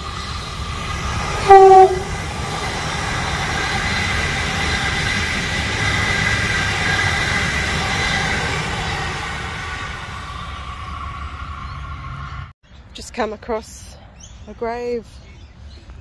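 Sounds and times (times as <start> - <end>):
train rumbling along track: 0.0 - 13.3
train horn blast: 1.4 - 2.2.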